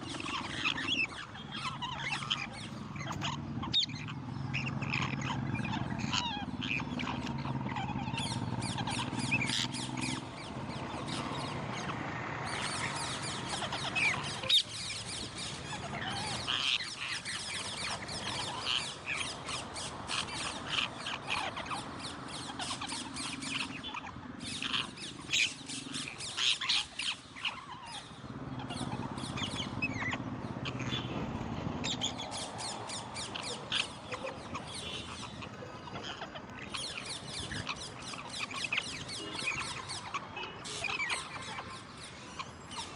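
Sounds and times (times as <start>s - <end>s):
parrots squawking and chirping: 0.0s - 42.9s.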